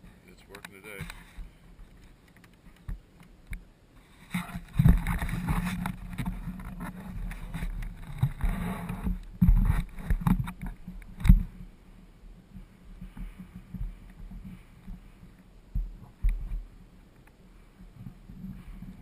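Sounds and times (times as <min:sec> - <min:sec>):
wind on microphone: 0:04.1 - 0:19.0.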